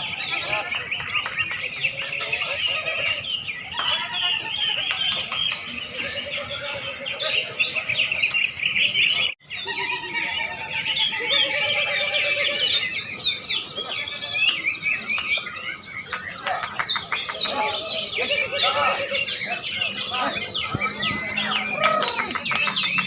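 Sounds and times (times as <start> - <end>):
songbirds chirping and singing: 0.0 - 23.0.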